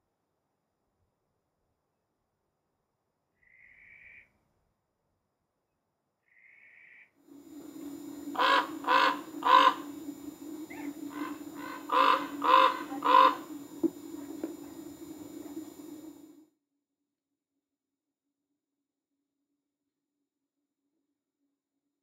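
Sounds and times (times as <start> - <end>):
steady low hum: 7.2 - 16.4
ravens croaking: 7.3 - 16.4.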